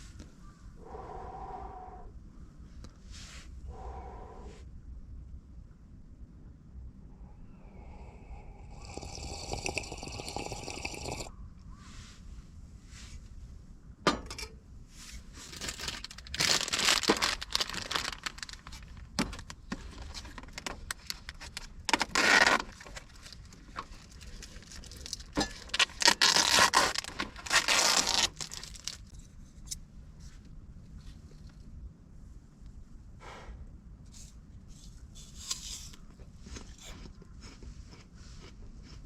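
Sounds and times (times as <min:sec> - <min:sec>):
plastic rustling and crinkling: 0:15.0 - 0:29.2.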